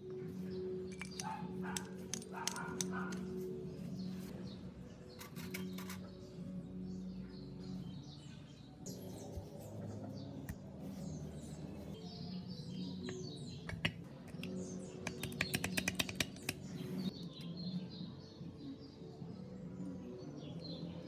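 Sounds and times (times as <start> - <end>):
small birds chirping: 0.0 - 19.1.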